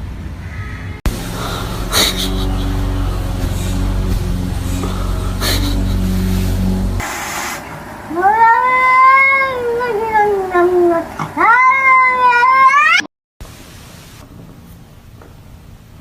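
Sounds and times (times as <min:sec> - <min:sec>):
cat meowing: 0:08.2 - 0:13.0.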